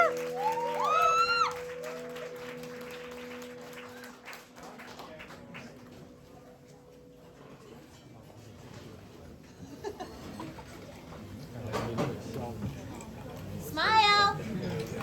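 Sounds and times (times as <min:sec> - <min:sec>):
audience whooping: 0:00.0 - 0:04.4
audience applause: 0:00.0 - 0:06.1.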